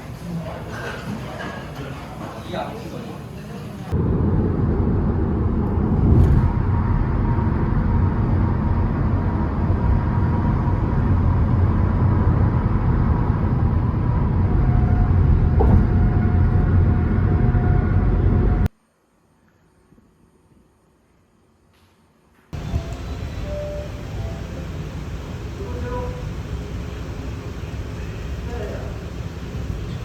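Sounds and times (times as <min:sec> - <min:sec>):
car road and engine rumble: 0:03.9 - 0:18.7, 0:22.6 - 0:30.0.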